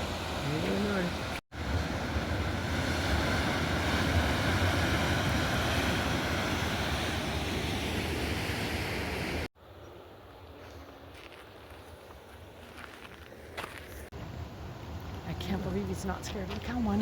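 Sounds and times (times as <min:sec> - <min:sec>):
ocean surf rushing: 0:00.0 - 0:09.5.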